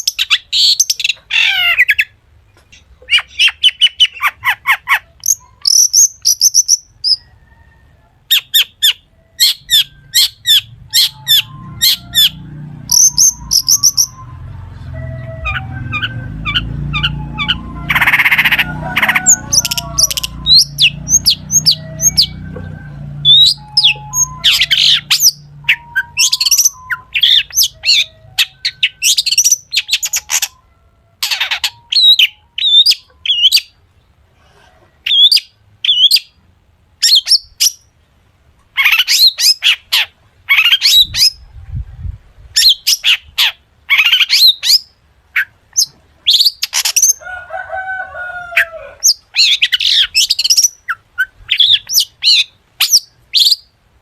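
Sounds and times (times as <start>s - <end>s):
shrike singing chirps and whistles: 5.2s - 7.3s, 8.3s - 33.8s, 49.0s - 53.7s.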